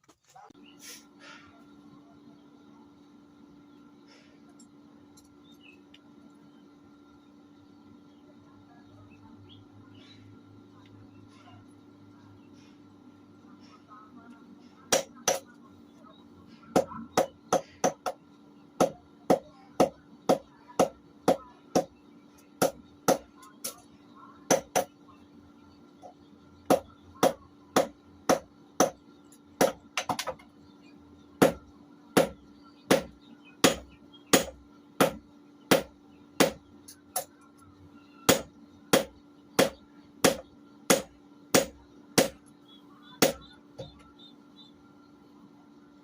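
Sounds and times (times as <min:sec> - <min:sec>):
hammer striking metal on anvil: 0:38.3 - 0:42.4.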